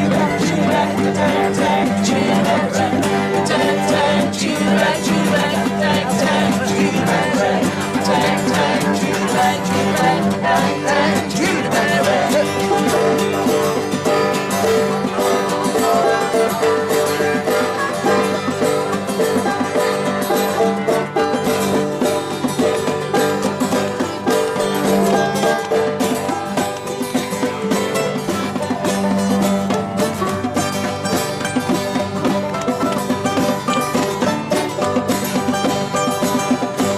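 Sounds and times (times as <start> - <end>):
banjo: 0.0 - 36.9
guitars strumming: 0.0 - 36.9.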